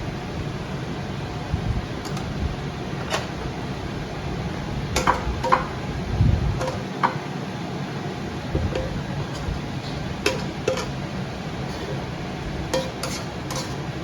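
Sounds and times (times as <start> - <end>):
steady low hum: 0.0 - 14.0
utensils clinking on dishes: 5.0 - 5.8, 6.6 - 7.2, 8.6 - 14.0.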